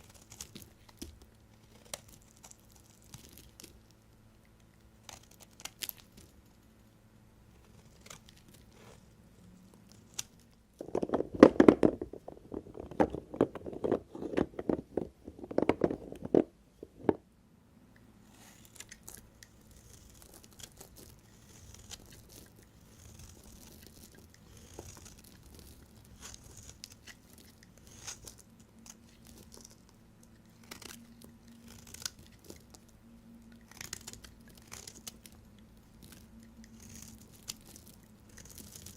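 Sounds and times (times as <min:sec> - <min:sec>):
knife crunching through soap: 0:00.0 - 0:03.8, 0:05.0 - 0:06.3, 0:18.3 - 0:29.9, 0:30.6 - 0:32.8, 0:33.5 - 0:38.9.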